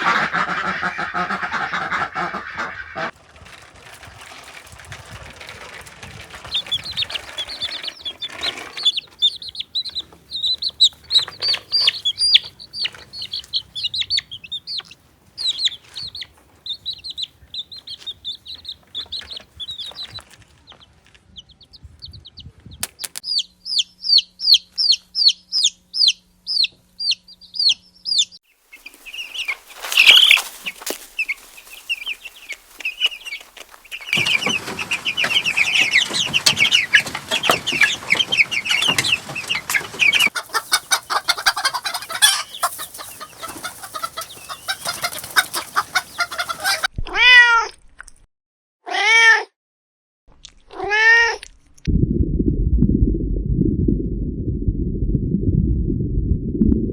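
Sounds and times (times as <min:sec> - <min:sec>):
chicks peeping: 0:00.0 - 0:46.9
scratchy rustling: 0:03.1 - 0:09.6, 0:28.6 - 0:46.8.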